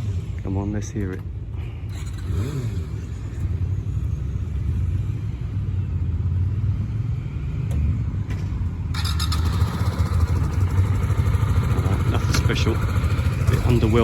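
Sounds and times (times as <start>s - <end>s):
motorcycle engine idling: 8.5s - 14.0s.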